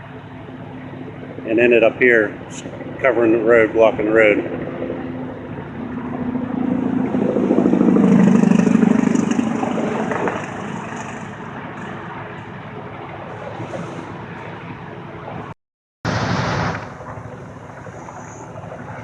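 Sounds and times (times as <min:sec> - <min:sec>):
vehicle engine passing: 0:06.6 - 0:12.6.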